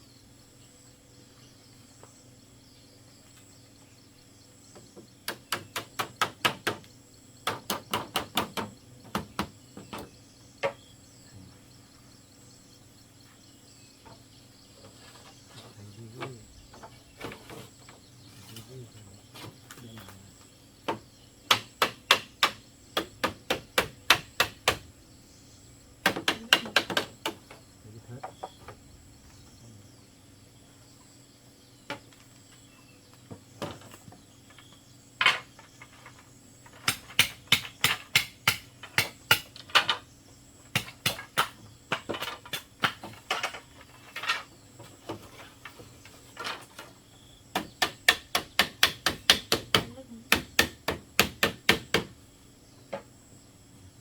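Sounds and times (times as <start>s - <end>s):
insects buzzing: 0.0s - 54.0s
hammer driving nails: 5.3s - 9.5s, 20.9s - 24.8s, 36.7s - 40.0s, 47.6s - 52.1s.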